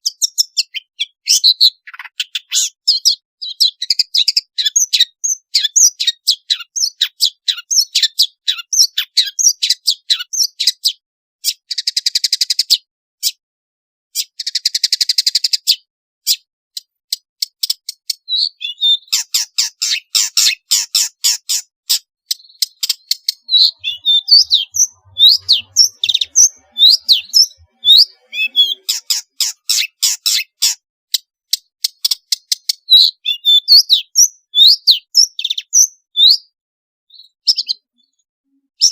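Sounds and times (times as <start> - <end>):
bird singing high chirps: 0.0 - 13.4, 14.2 - 38.9.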